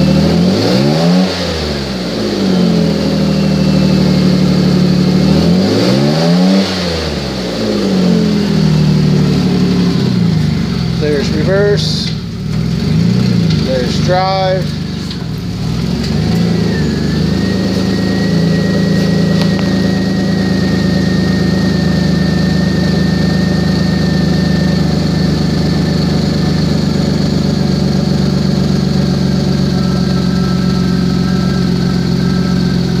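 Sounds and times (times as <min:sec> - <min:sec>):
car engine running: 0:00.0 - 0:33.0
thin steady whine: 0:16.4 - 0:25.2.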